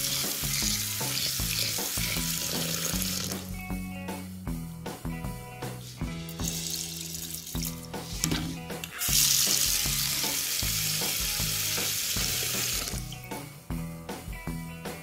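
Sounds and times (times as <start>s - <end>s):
tap water running into bowl: 0.0s - 3.5s, 6.4s - 13.1s
background music: 0.0s - 15.0s.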